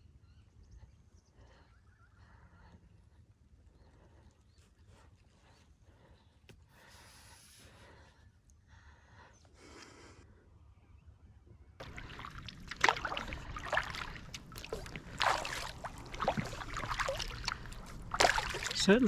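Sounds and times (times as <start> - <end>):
kayak paddle strokes in water: 11.8 - 19.0
water dripping: 11.8 - 19.0.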